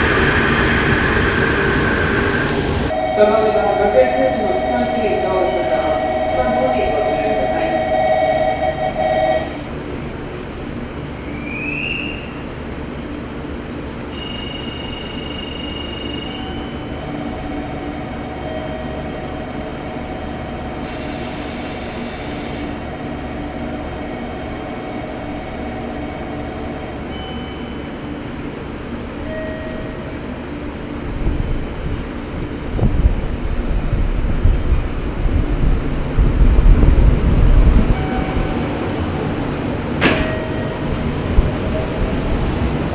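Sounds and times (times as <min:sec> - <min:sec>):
faint high squealing tones: 0:00.0 - 0:03.6
train running hum: 0:00.0 - 0:42.9.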